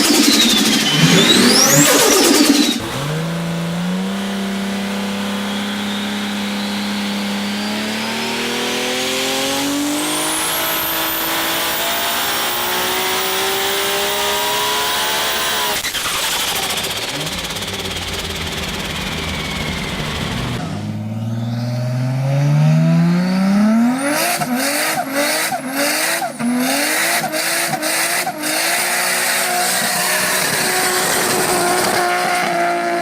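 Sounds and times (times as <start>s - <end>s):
thin high whine: 0.0s - 15.8s
car engine revving: 0.0s - 33.0s.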